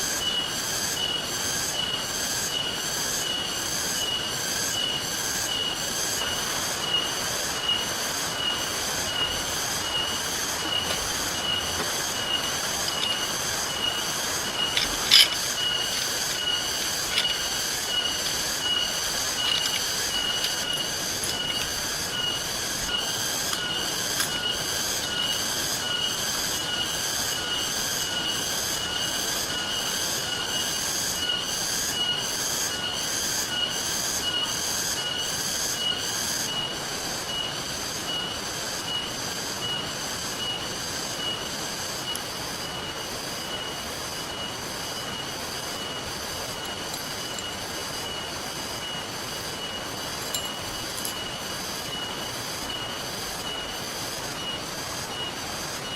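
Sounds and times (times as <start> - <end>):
river water rushing: 6.3 - 26.5.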